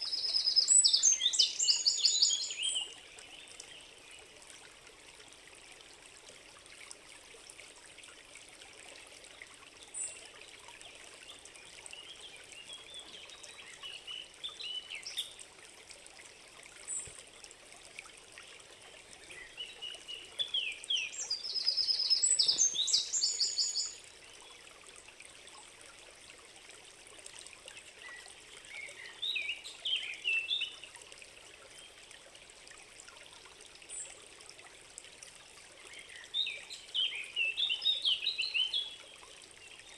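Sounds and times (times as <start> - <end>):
songbirds singing: 0.0 - 4.3, 11.2 - 15.4, 19.1 - 24.3, 28.0 - 30.9, 35.9 - 39.9
trickling stream: 0.0 - 39.9.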